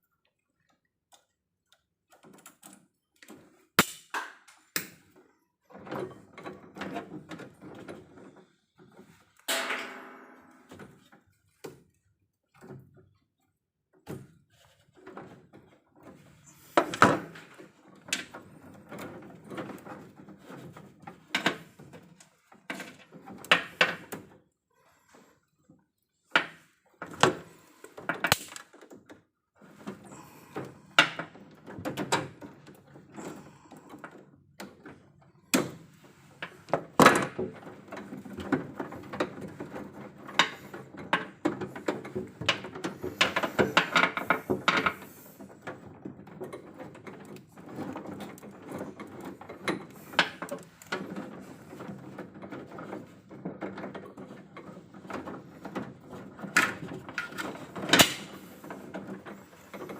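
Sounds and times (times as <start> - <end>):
tools and hardware rattling: 36.1 - 59.9.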